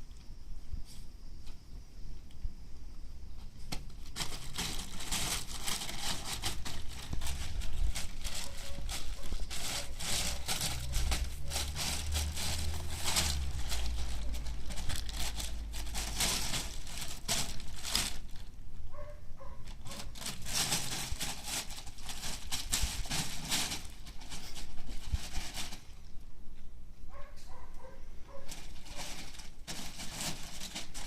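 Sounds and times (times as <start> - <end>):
puppy rustling and scuffling: 3.4 - 26.1, 27.1 - 31.0
low rumble: 9.2 - 17.1.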